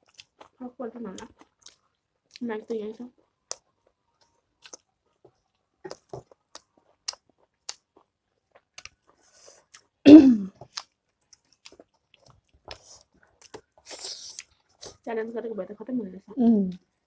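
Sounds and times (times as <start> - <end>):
close-miked chewing: 0.0 - 15.1
falling throat sound: 10.1 - 10.5.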